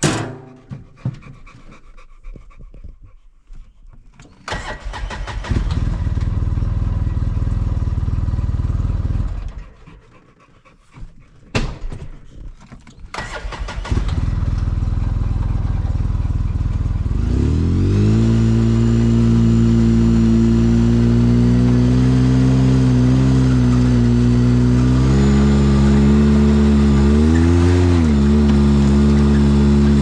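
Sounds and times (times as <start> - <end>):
vehicle engine running: 4.9 - 9.8, 13.6 - 30.0.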